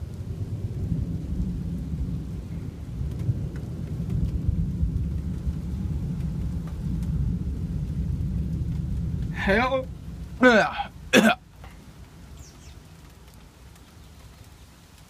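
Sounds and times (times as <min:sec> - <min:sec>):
thunder rumbling: 0:00.0 - 0:13.8
faint ticks: 0:03.1 - 0:04.4, 0:06.1 - 0:07.2, 0:11.6 - 0:15.0.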